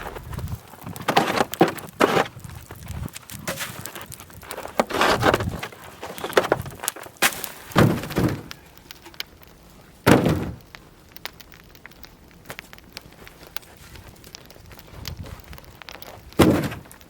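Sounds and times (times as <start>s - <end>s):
heavy thuds: 10.1s - 10.6s.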